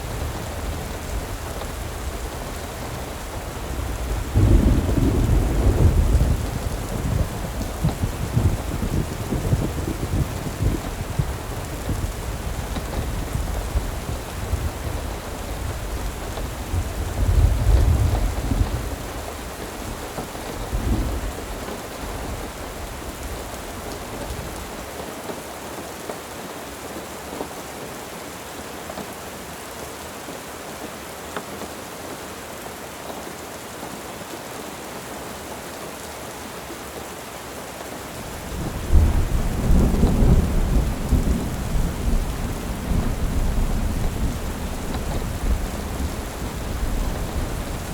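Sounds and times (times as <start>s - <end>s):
rolling thunder: 0.0s - 19.3s, 38.2s - 47.9s
steady rain falling: 0.0s - 47.9s.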